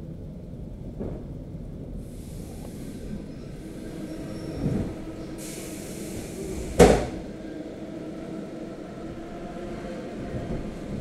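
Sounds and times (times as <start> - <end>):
electric train rumble: 0.0 - 11.0
passing train rushing noise: 0.2 - 11.0.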